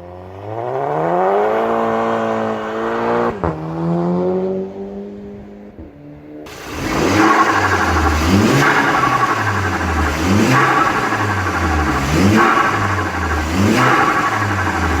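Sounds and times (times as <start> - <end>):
car engine revving: 6.5 - 15.0.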